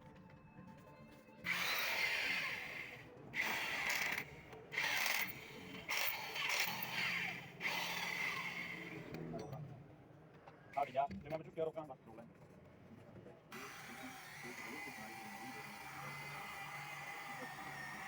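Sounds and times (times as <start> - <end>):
power tool bursts: 1.5 - 9.0, 13.6 - 18.0.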